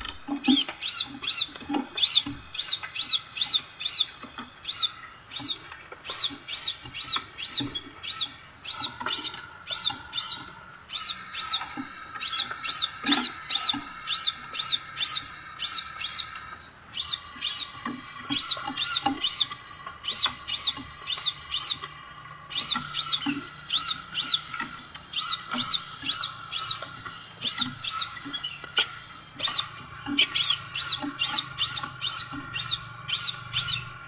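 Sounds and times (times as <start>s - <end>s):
bird whistled chirps: 0.5s - 21.9s.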